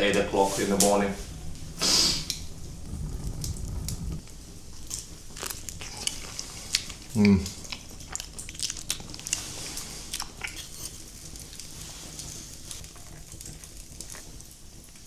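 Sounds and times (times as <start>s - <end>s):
chewing: 0.8s - 15.0s
person eating crunching: 4.8s - 14.4s.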